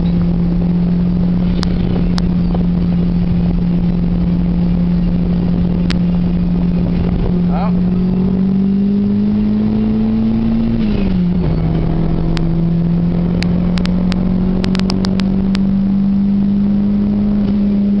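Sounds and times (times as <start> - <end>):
car engine droning under load: 0.0 - 18.0
sharp clicks: 13.4 - 15.6.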